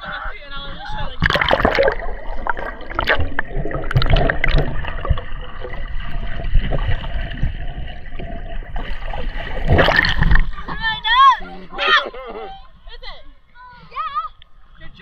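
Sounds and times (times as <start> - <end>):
seawater sloshing and gurgling: 0.0 - 11.8
splashes and knocks: 1.0 - 11.1.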